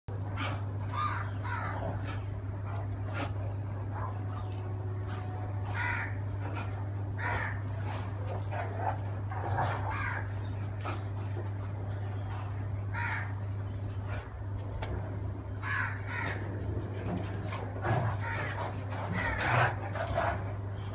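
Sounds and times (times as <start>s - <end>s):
steady low hum: 0.1s - 20.9s
crow cawing: 0.9s - 1.8s, 5.7s - 6.2s, 7.2s - 7.6s, 9.9s - 10.3s, 12.9s - 13.4s, 15.6s - 16.4s, 18.2s - 19.6s.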